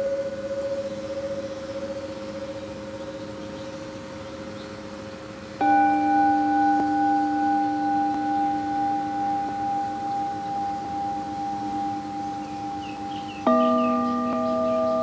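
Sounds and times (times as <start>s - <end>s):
singing bowl ringing: 0.0s - 3.6s, 5.6s - 15.0s
singing bowl struck: 5.6s - 15.0s.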